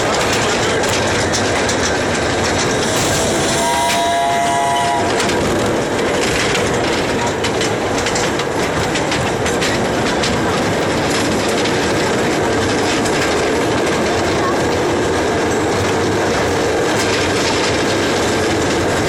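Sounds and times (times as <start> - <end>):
train wheels clacking on rails: 0.0 - 19.0
train horn: 2.8 - 5.7.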